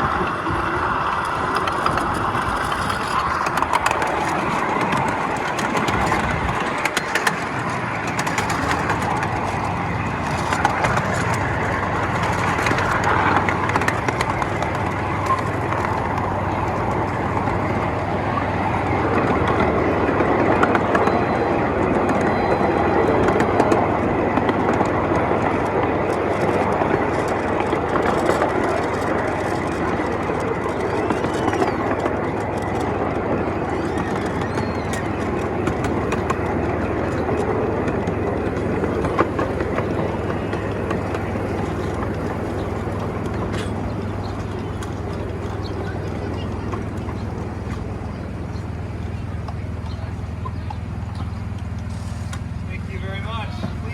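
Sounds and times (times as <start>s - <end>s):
miniature train wheels rumbling: 0.0s - 53.9s
track clicks: 0.0s - 53.9s.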